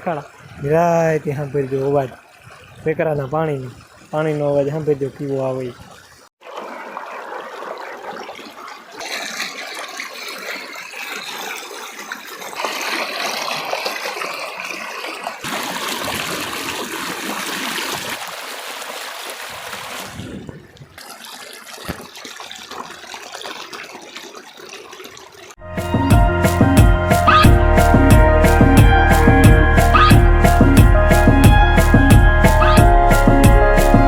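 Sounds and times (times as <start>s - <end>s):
stream rushing over its bed: 6.4s - 20.2s.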